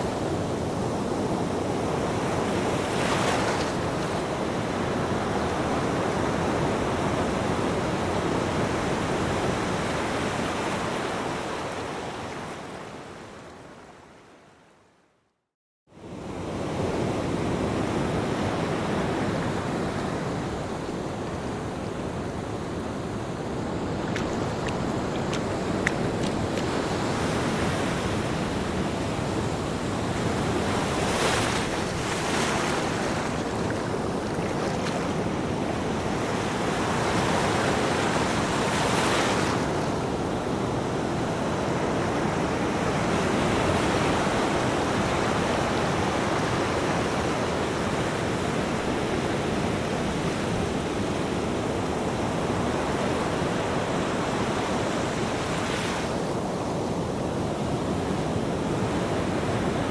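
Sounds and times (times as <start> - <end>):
ocean waves breaking on beach: 0.0 - 13.7, 16.0 - 59.9
wind noise: 16.2 - 59.9.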